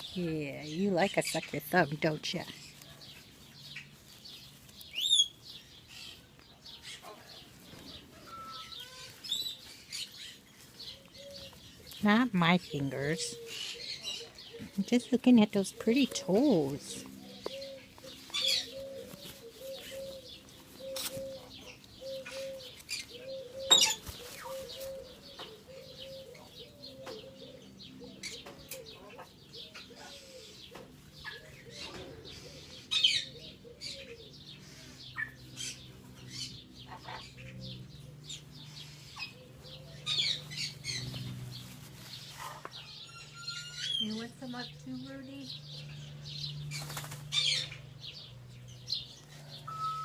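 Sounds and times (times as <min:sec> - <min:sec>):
baby parrot soft calls: 0:08.2 - 0:09.2
feather rustling: 0:23.8 - 0:25.2, 0:40.2 - 0:42.8
high chirps: 0:49.6 - 0:50.0.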